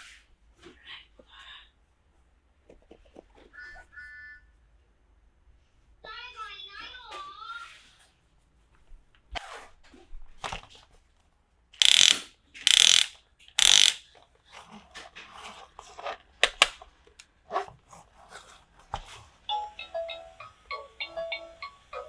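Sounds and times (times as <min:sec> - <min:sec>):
plastic pieces clicking and scraping: 0:11.8 - 0:14.0, 0:16.4 - 0:16.8.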